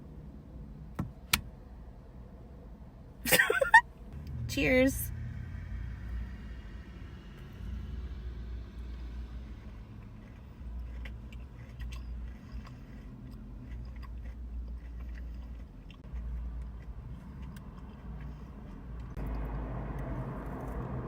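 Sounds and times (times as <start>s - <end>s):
steady low rumble: 0.0s - 21.0s
chewing and biting: 8.8s - 19.6s.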